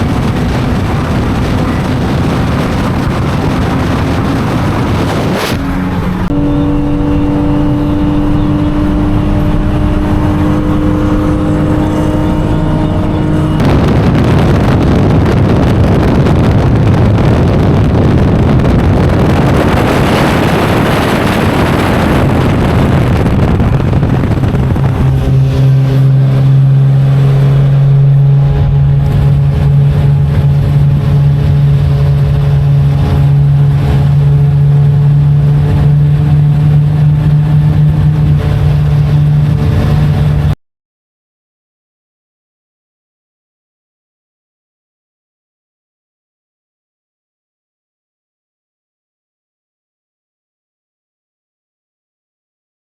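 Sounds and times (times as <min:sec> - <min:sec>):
car engine running: 0:00.0 - 0:40.6
wind and road noise: 0:00.0 - 0:40.6.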